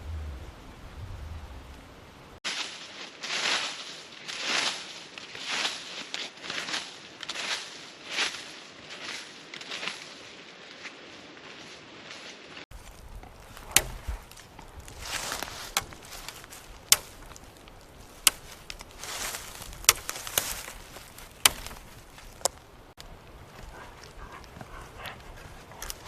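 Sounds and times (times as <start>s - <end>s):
rustling: 0.0s - 26.0s
sharp knocks: 13.6s - 14.3s.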